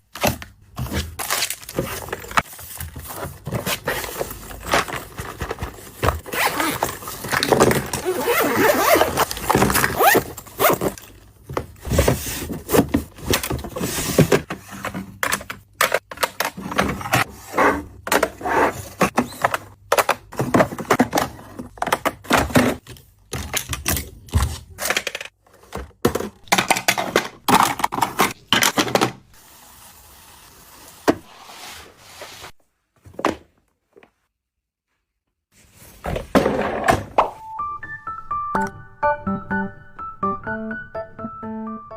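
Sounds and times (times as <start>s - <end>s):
household items knocking and scraping: 0.2s - 29.2s, 36.0s - 37.4s.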